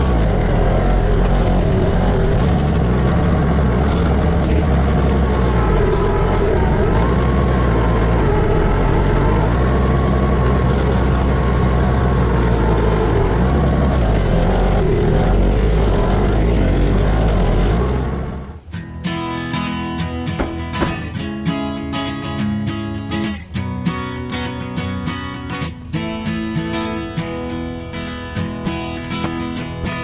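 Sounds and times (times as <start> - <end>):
tractor engine running under load: 0.0 - 18.8.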